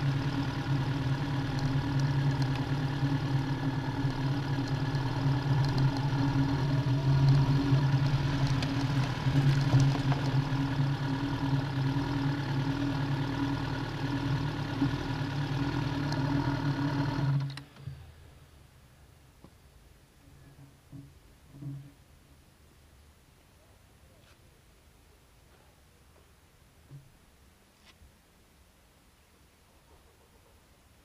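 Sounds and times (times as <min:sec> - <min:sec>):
motorcycle engine idling: 0:00.0 - 0:18.4.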